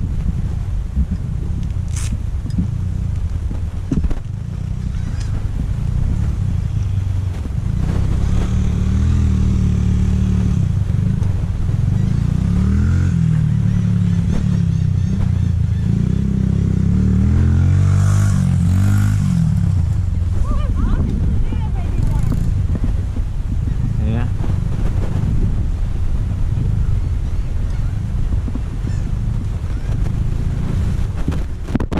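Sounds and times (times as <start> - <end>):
dirt bike engine revving: 4.5 - 23.0.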